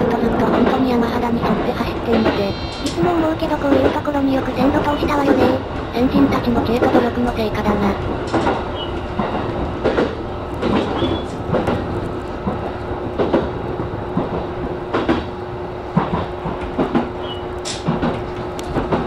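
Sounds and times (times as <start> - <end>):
electric train rumbling: 0.0 - 19.0
wheels clacking over rail joints: 8.0 - 15.3.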